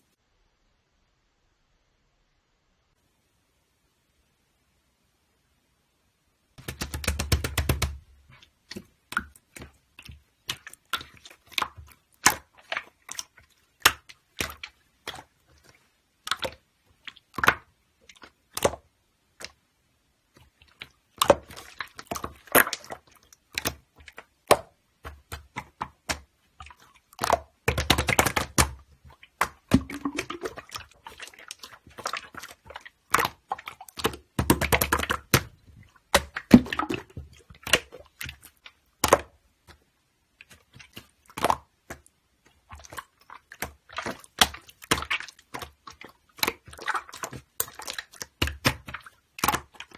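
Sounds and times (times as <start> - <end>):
typing on computer keyboard: 6.6 - 8.0.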